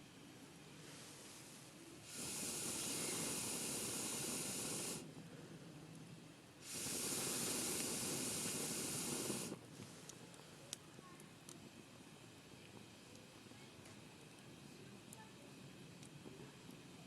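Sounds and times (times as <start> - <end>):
air blown into campfire: 0.7 - 5.7, 6.6 - 10.3.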